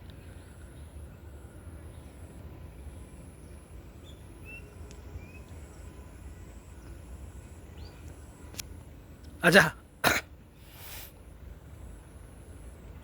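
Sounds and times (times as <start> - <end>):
faint bird chirps: 0.2 - 8.6
high insect drone: 0.2 - 13.0.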